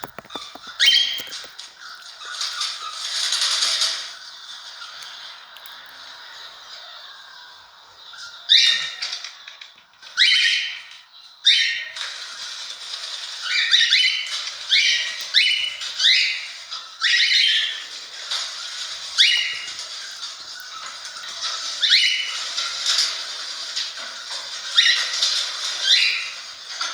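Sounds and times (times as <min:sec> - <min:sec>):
cockatiel calling: 0:00.0 - 0:01.5, 0:13.4 - 0:18.4, 0:19.1 - 0:20.2, 0:21.4 - 0:22.6.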